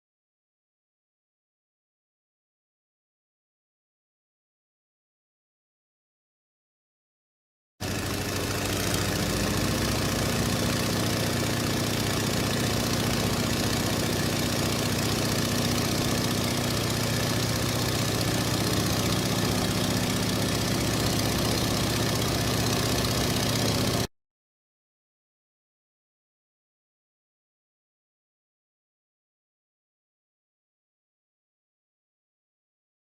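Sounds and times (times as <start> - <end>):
aircraft engine running: 7.8 - 24.1.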